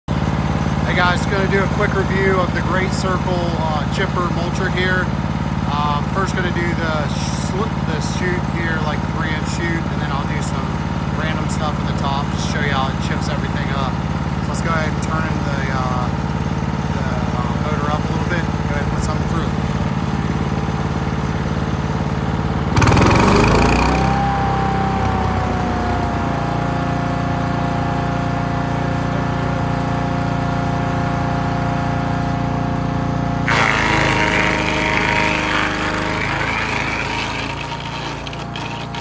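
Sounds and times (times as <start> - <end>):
wood chipper engine whine: 0.1 - 39.0
branches being chipped: 33.5 - 39.0.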